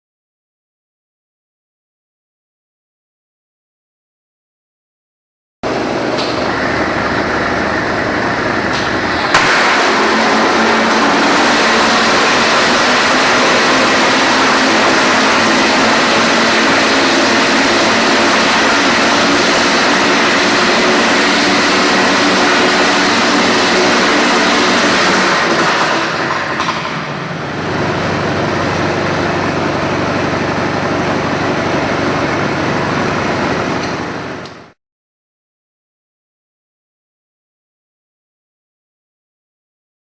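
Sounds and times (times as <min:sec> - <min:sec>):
detonation engine harsh rattle: 0:05.6 - 0:34.7
sharp crack: 0:06.2 - 0:14.2.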